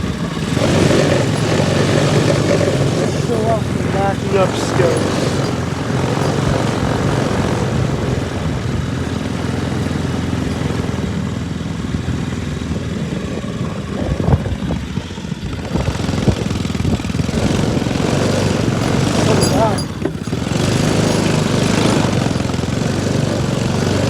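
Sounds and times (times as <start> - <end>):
knocks and rattles: 0.0 - 11.6, 17.1 - 24.0
lawn mower engine running: 0.0 - 24.0.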